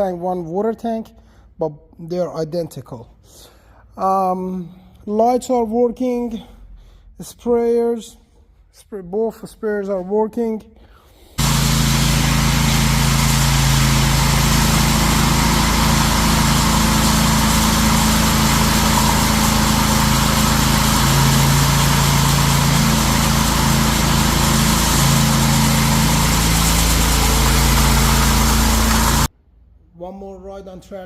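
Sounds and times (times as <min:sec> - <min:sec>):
small gasoline engine running: 0:11.4 - 0:29.3.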